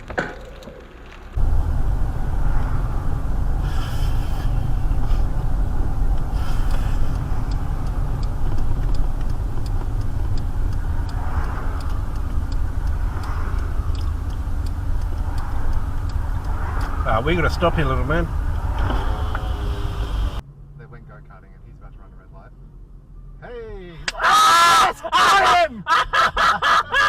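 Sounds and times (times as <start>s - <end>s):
car engine and tyre rumble: 0.0s - 24.9s
faint regular ticks: 3.6s - 18.8s.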